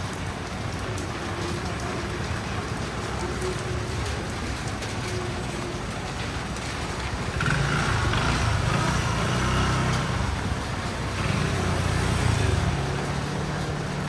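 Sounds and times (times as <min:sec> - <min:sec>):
vehicle engine passing by: 0:07.2 - 0:14.0.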